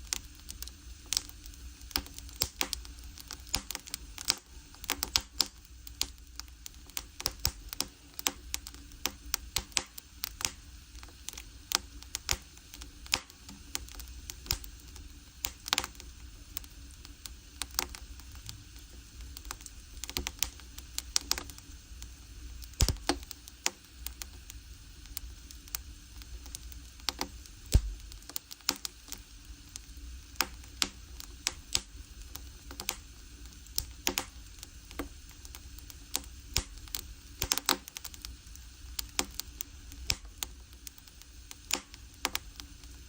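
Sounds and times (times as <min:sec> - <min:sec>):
firewood crackling and popping: 0:00.0 - 0:43.0
low rumble of fire: 0:00.0 - 0:43.0.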